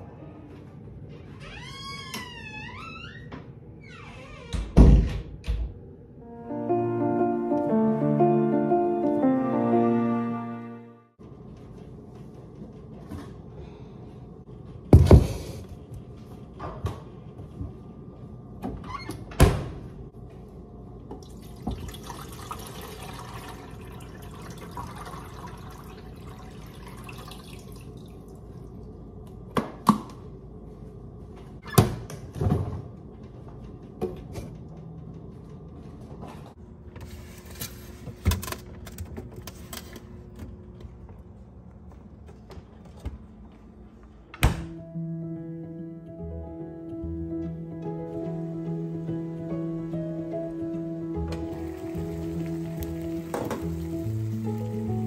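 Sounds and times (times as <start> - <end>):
water running into container: 21.2 - 28.4, 51.4 - 55.0.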